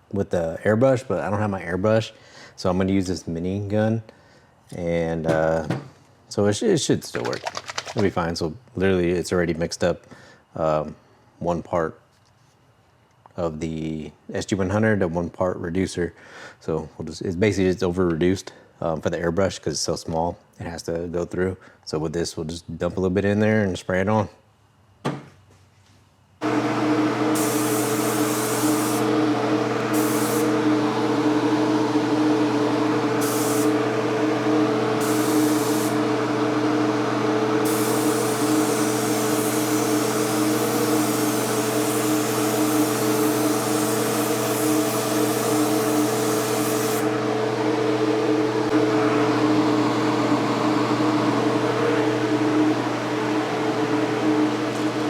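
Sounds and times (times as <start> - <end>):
spray gun hissing: 26.4 - 47.3
steady machine hum: 26.4 - 55.0.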